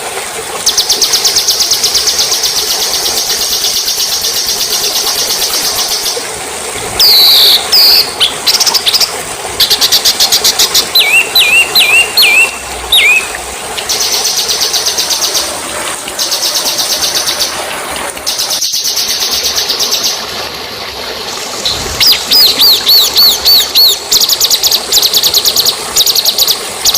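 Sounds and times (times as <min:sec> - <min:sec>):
songbird trills and whistles: 0:07.0 - 0:08.1, 0:11.0 - 0:13.3, 0:21.7 - 0:24.0.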